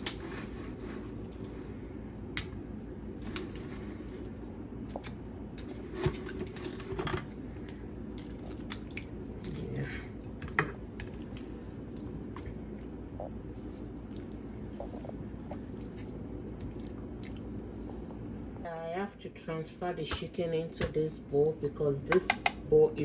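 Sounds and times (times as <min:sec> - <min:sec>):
wet squishes of raw chicken: 0:07.6 - 0:09.9.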